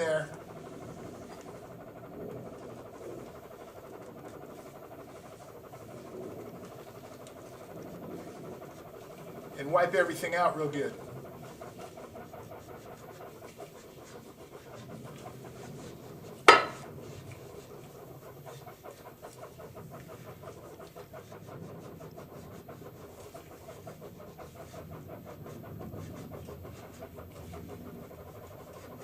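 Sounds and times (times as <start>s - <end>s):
rag scraping inside metal bore: 0.0s - 29.0s
sharp knock: 16.5s - 16.8s.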